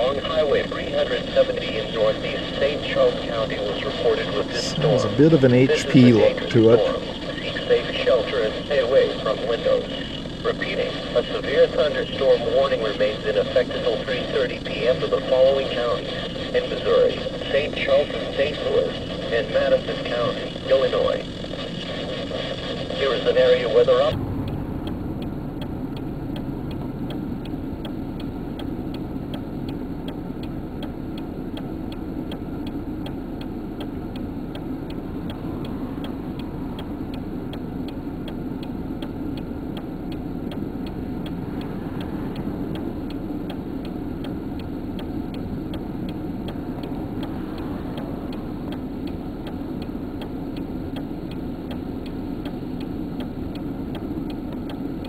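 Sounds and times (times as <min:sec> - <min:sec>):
vehicle rumble inside cab: 0:00.0 - 0:55.0
fast even ticking: 0:04.5 - 0:07.1, 0:24.1 - 0:55.0.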